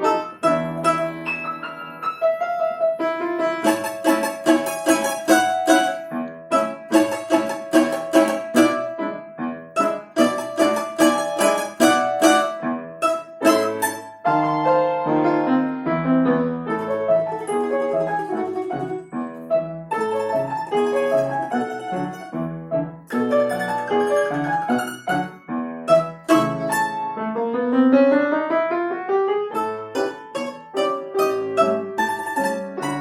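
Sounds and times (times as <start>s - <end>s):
plucked string instrument: 0.0s - 14.8s, 16.7s - 27.2s, 29.6s - 33.0s
piano playing chords and melody: 0.0s - 33.0s.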